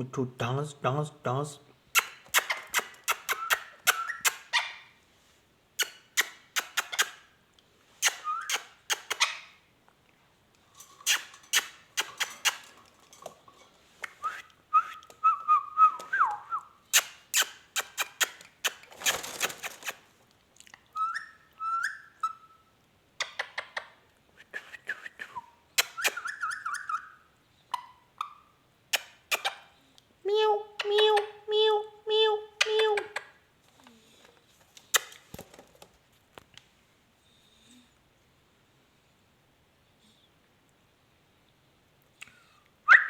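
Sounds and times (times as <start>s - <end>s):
parrot clicking chatter: 1.9s - 4.7s, 5.8s - 7.2s, 8.0s - 9.5s, 11.0s - 12.8s, 16.9s - 20.0s
parrot whistles: 2.0s - 4.8s, 8.0s - 9.5s, 21.0s - 22.7s, 25.4s - 27.2s.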